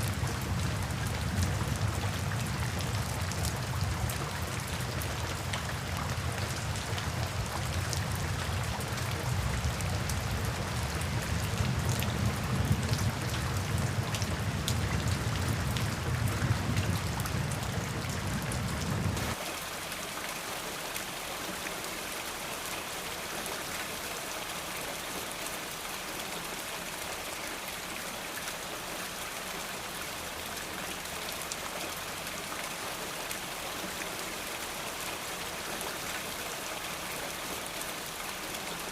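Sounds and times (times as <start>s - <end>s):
rain drops pattering: 0.0s - 38.9s
deep rumble: 0.1s - 19.3s.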